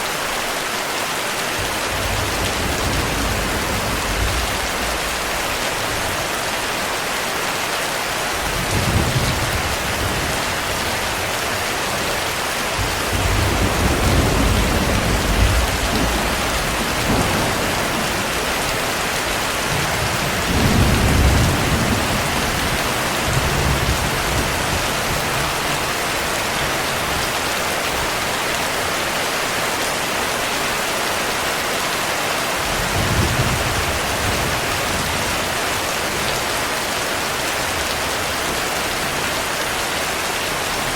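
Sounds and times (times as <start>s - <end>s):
heavy rain: 0.0s - 40.9s
thunder rumbling: 1.6s - 6.6s, 8.4s - 25.6s.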